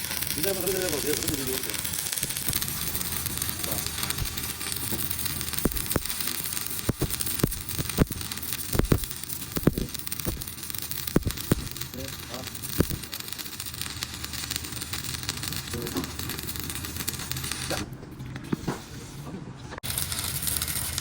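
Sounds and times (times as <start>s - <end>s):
sharp knocks and clicks: 6.9s - 10.5s.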